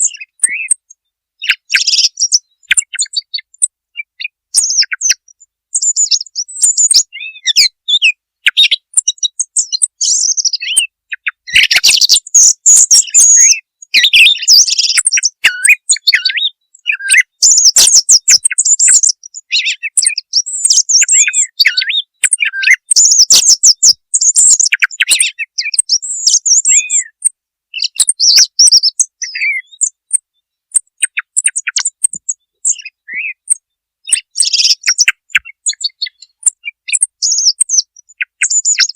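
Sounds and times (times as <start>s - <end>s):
song thrush singing: 0.0s - 38.9s.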